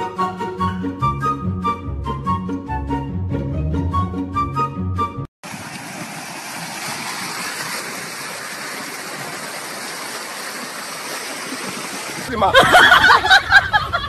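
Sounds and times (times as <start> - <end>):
running water rushing: 5.4 - 13.1.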